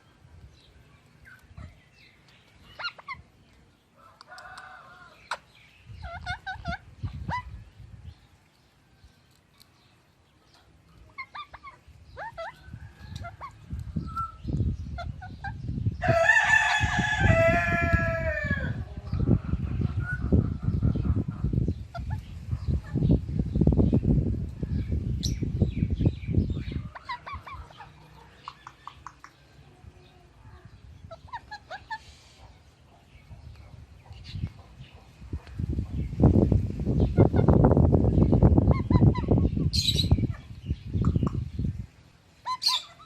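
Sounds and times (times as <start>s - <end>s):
bird chirps and squawks: 2.6s - 3.3s, 5.1s - 7.6s, 10.5s - 15.7s, 26.6s - 29.4s, 30.6s - 32.6s, 38.6s - 41.4s, 42.4s - 43.0s.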